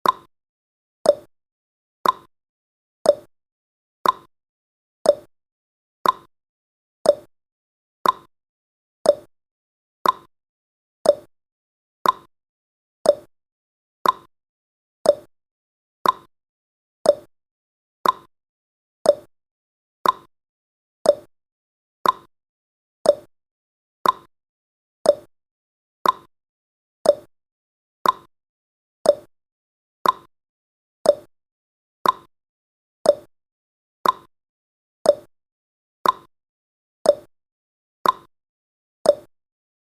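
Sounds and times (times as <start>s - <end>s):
countdown timer ticking: 7.1s - 7.3s, 9.1s - 9.3s, 11.1s - 11.3s, 13.1s - 13.3s, 15.1s - 15.3s, 17.1s - 17.3s, 19.1s - 19.3s, 21.1s - 21.3s, 23.1s - 23.3s, 24.0s - 24.3s, 25.1s - 25.3s, 26.0s - 26.3s, 27.0s - 27.3s, 28.0s - 28.3s, 29.1s - 29.3s, 30.0s - 30.3s, 31.1s - 31.3s, 32.0s - 32.3s, 33.1s - 33.3s, 34.0s - 34.3s, 35.1s - 35.3s, 36.0s - 36.3s, 37.1s - 37.3s, 38.0s - 38.3s, 39.1s - 39.3s.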